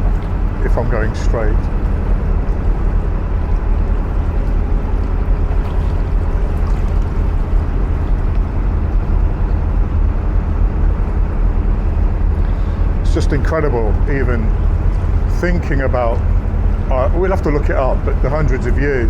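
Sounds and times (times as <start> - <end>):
diesel boat engine droning: 0.0 - 19.0.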